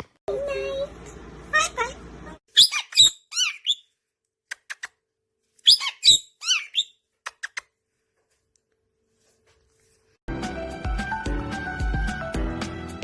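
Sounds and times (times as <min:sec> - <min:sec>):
parrot chirping: 0:02.5 - 0:05.0, 0:05.6 - 0:07.7.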